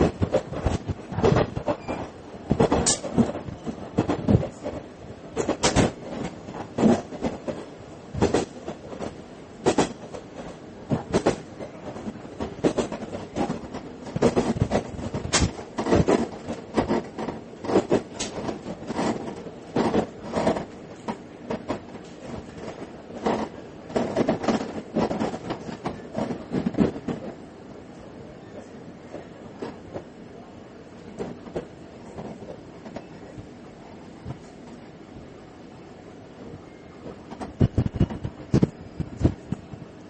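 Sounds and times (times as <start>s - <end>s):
wheels clacking over rail joints: 0.0s - 27.3s
train running noise: 0.0s - 40.0s.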